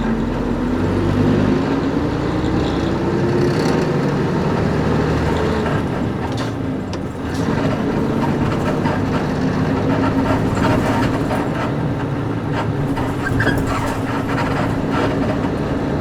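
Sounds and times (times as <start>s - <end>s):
bus diesel engine running: 0.0s - 16.0s
road noise: 0.0s - 16.0s
suspension and body creaks: 6.3s - 15.6s.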